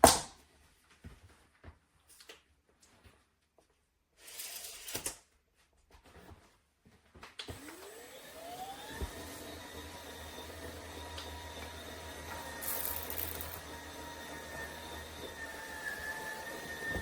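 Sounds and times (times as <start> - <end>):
spin mop motor whine: 7.5 - 17.0.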